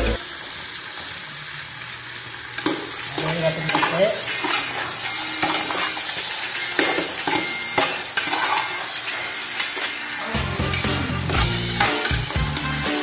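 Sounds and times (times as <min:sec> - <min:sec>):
chicken sizzling in a pot: 0:00.0 - 0:13.0
music: 0:06.6 - 0:13.0.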